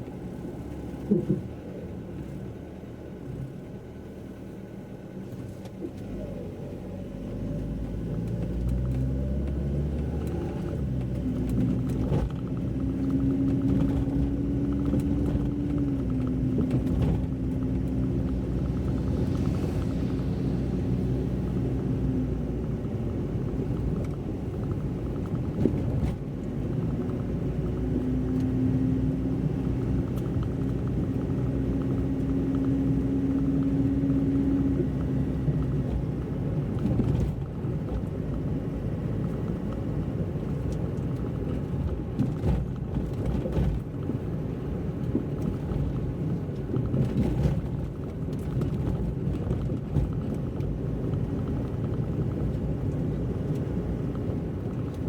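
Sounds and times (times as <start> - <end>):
engine drone: 0.0 - 45.9
car road noise rumble: 0.0 - 55.0.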